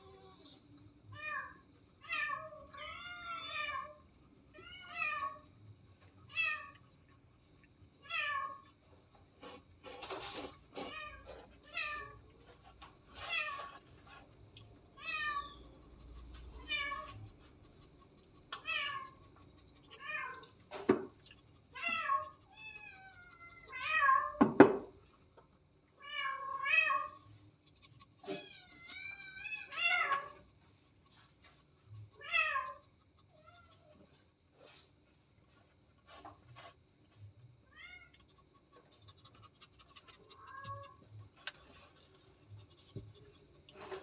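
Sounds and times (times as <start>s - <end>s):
cat meowing: 21.8s - 24.4s, 28.2s - 30.4s, 39.9s - 41.0s.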